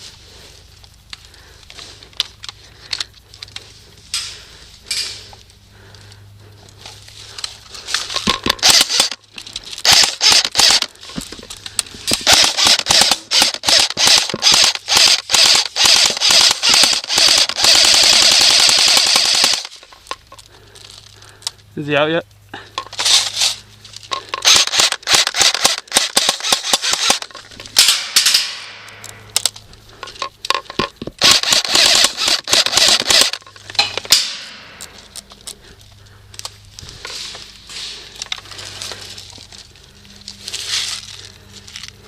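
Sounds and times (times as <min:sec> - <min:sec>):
airsoft guns firing: 0:08.3 - 0:09.2, 0:09.8 - 0:10.9, 0:12.1 - 0:19.8, 0:24.4 - 0:29.2, 0:31.2 - 0:35.0.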